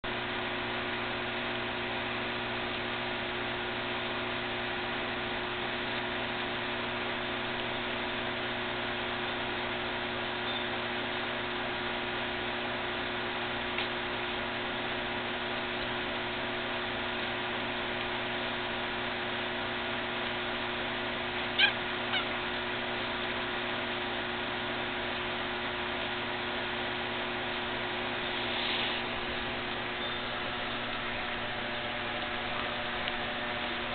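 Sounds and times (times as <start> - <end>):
electrical hum and hiss: 0.1 - 33.9
puppy squeaking: 21.6 - 22.4, 29.9 - 31.0.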